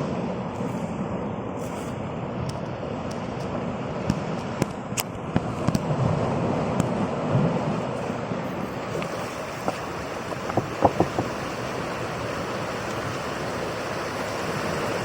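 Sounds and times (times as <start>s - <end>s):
wind: 0.0s - 15.0s
water rushing: 2.0s - 15.0s.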